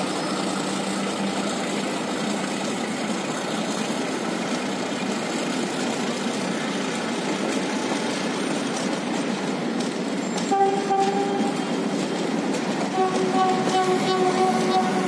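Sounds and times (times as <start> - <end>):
train wheels rumbling on rail: 0.0 - 15.0
faint rail clicks: 4.5 - 15.0.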